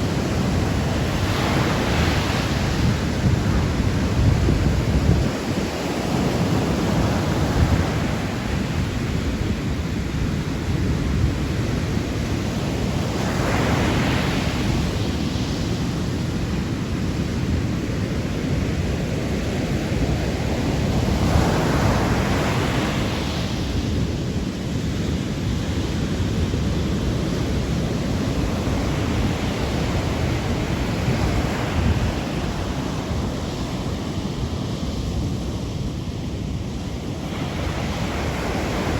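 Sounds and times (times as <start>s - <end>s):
sea waves washing in: 0.0s - 10.2s, 19.4s - 38.9s
wind buffeting microphone: 0.0s - 38.9s.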